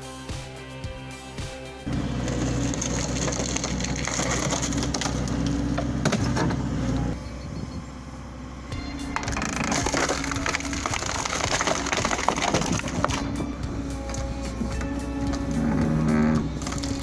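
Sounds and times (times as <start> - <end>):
low machine drone: 1.9 - 17.0
wood cracking and splintering: 2.1 - 7.1, 9.1 - 17.0.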